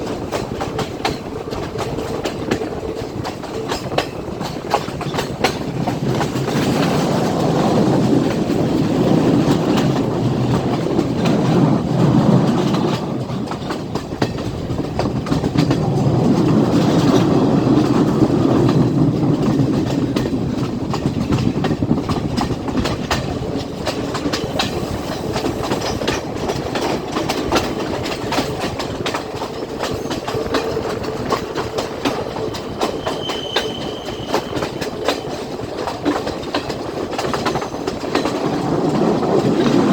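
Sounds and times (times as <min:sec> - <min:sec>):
train rumble: 0:00.0 - 0:39.9
train wheels clattering on rails: 0:00.0 - 0:39.9
faint squeal: 0:32.9 - 0:34.6.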